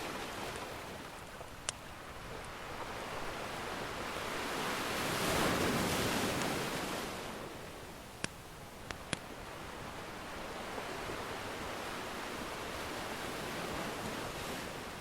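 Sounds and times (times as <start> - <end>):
ocean wave washing in: 2.2 - 7.7.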